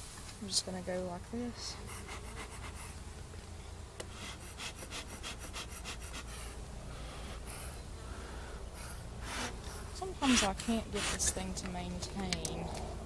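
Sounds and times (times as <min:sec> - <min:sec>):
bellows puffing air: 0:04.0 - 0:11.6.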